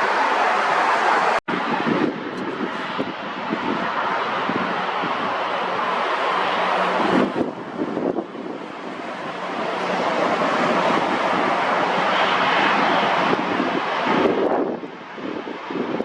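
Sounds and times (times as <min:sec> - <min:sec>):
jet engines rushing: 0:00.0 - 0:16.0
wind buffeting microphone: 0:01.3 - 0:16.0.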